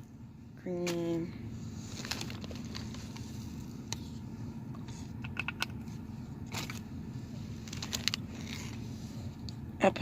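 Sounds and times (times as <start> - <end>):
steady low hum: 0.0 - 10.0
creamer cups and packets clinking: 7.6 - 8.8.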